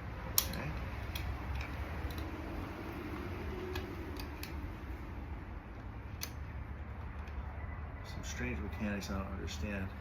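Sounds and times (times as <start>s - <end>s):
small metal parts clicking: 0.3s - 2.4s, 3.7s - 4.7s.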